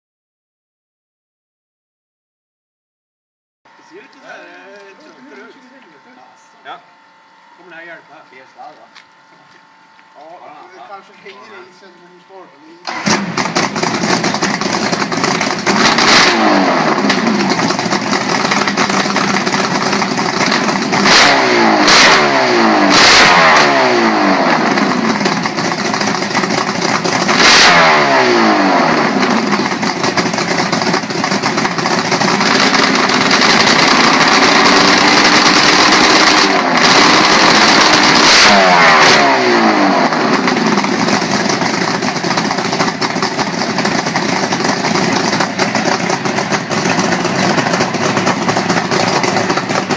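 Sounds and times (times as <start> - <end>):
engine revving: 12.8 - 49.9.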